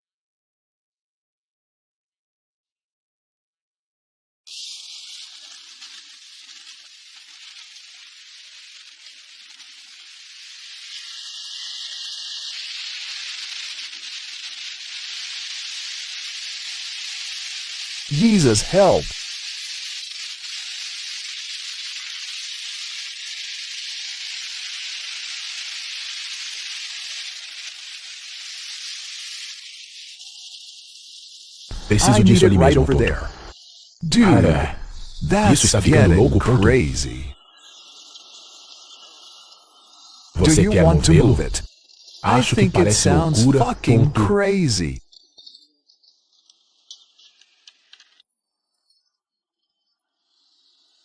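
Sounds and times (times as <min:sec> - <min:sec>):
storm rain and wind hiss: 0:18.1 - 0:19.2, 0:31.7 - 0:37.4.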